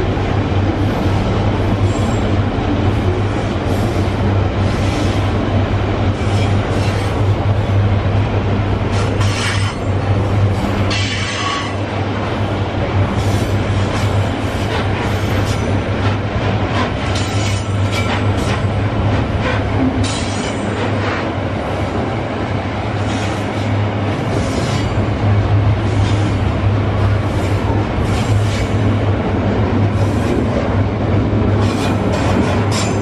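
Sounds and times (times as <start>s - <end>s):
freight train rolling rumble: 0.0s - 33.0s
wheel clacks over rail joints: 8.9s - 10.0s, 13.9s - 21.3s, 31.6s - 33.0s.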